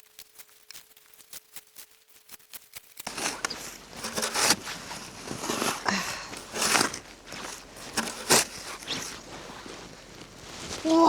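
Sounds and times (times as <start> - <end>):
footsteps crunching through snow: 3.1 - 11.0.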